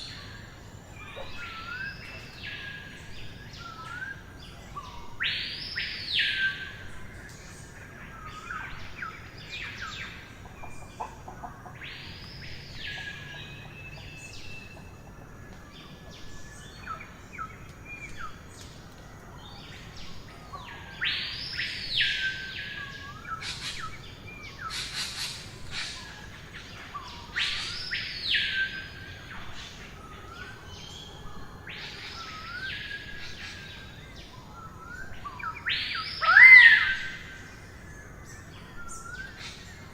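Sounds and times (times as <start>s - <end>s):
faint background hiss: 0.0s - 39.9s.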